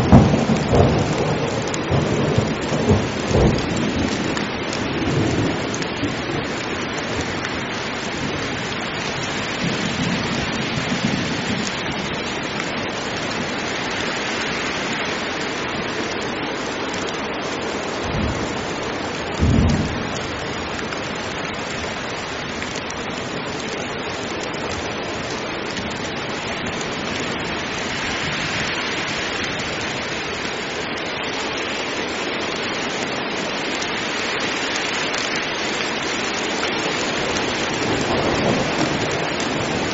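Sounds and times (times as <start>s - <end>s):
thunder rumbling: 0.0s - 7.3s, 19.3s - 21.8s, 37.1s - 39.9s
heavy rain: 0.0s - 39.9s.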